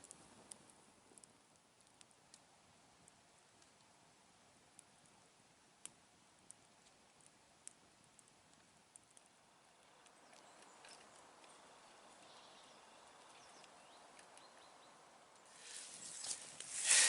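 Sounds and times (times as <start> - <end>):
campfire crackling: 0.0 - 17.0
fire hissing: 15.4 - 17.0.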